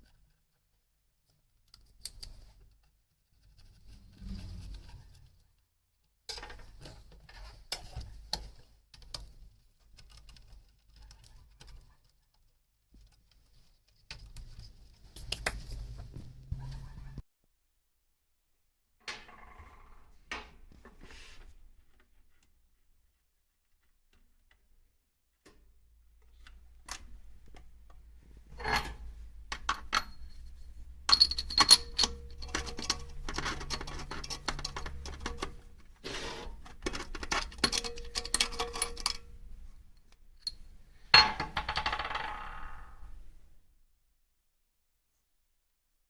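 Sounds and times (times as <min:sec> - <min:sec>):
metal parts and tools clinking: 0:28.5 - 0:35.8, 0:36.6 - 0:39.4.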